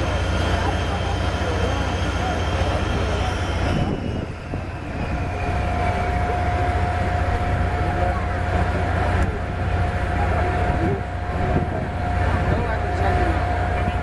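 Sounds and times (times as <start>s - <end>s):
jet engine whine: 0.0s - 14.0s
jet engines rumbling: 0.0s - 14.0s.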